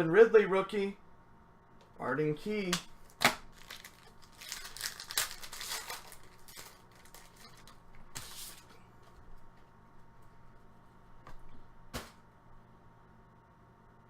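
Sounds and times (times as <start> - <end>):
trading cards rustling: 3.1 - 8.8.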